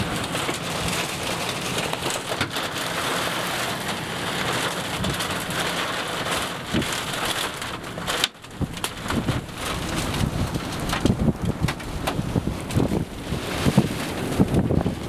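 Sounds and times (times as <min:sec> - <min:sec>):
wind buffeting microphone: 0:04.9 - 0:15.0.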